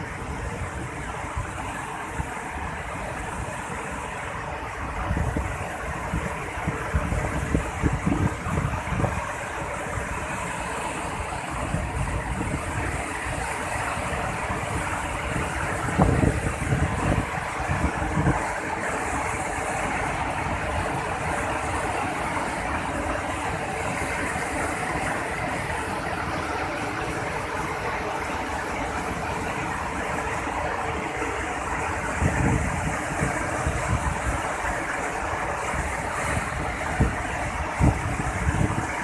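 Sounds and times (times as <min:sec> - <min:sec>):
waterfall rushing: 0:00.0 - 0:39.0
wind buffeting microphone: 0:04.8 - 0:10.2, 0:11.4 - 0:18.8, 0:30.9 - 0:39.0.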